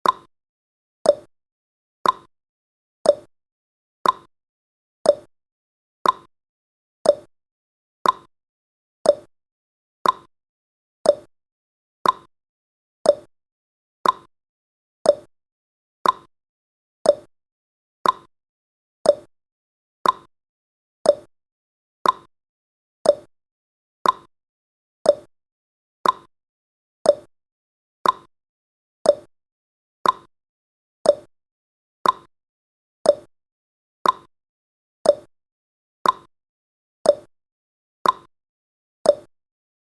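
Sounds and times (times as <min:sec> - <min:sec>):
countdown timer ticking: 0:05.1 - 0:05.3, 0:07.1 - 0:07.3, 0:09.1 - 0:09.3, 0:11.1 - 0:11.3, 0:13.1 - 0:13.3, 0:15.1 - 0:15.3, 0:17.1 - 0:17.3, 0:19.1 - 0:19.3, 0:21.1 - 0:21.3, 0:23.0 - 0:23.3, 0:24.0 - 0:24.3, 0:25.1 - 0:25.3, 0:27.1 - 0:27.3, 0:28.0 - 0:28.3, 0:29.1 - 0:29.3, 0:30.0 - 0:30.3, 0:31.1 - 0:31.3, 0:32.0 - 0:32.3, 0:33.1 - 0:33.3, 0:34.0 - 0:34.3, 0:35.1 - 0:35.3, 0:36.0 - 0:36.3, 0:37.1 - 0:37.3, 0:38.0 - 0:38.3, 0:39.1 - 0:39.3.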